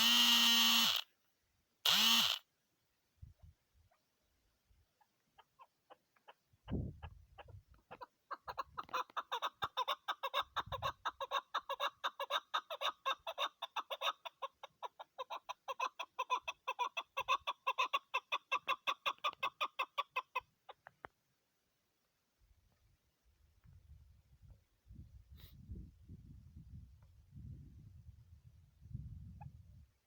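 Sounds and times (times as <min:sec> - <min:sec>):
partridge clucking call: 0:05.0 - 0:20.9.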